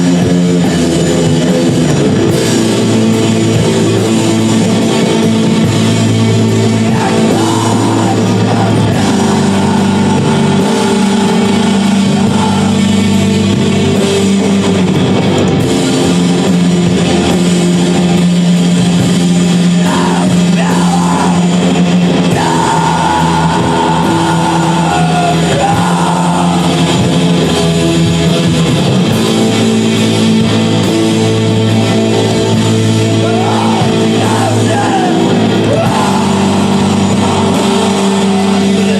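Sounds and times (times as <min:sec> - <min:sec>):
rock band playing live: 0:00.0 - 0:38.9
person singing: 0:06.8 - 0:13.2, 0:19.6 - 0:27.1, 0:33.1 - 0:38.9.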